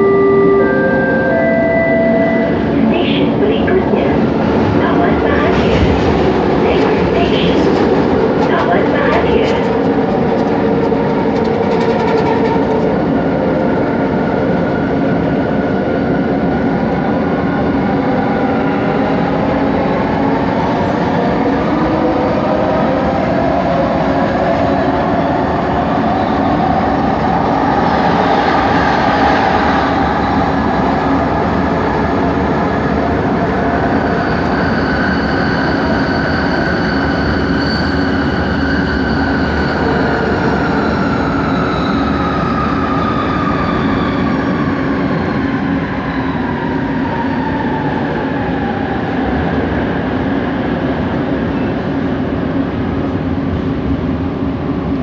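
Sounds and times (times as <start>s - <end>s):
metro train rumbling: 0.0s - 55.0s.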